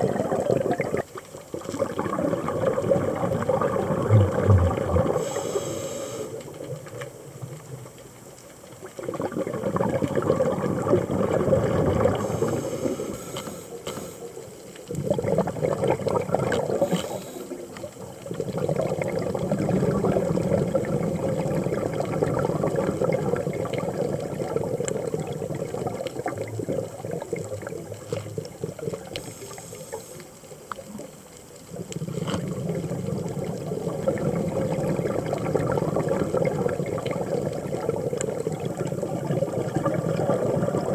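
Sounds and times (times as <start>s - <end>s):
underwater exhaled bubbles: 0.0s - 40.9s.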